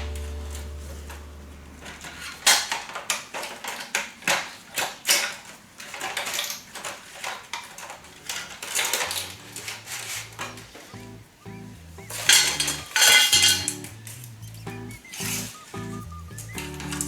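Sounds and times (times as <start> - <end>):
faint background music: 0.0 - 2.4, 7.2 - 17.0
hard parts clicking and knocking: 12.1 - 14.3.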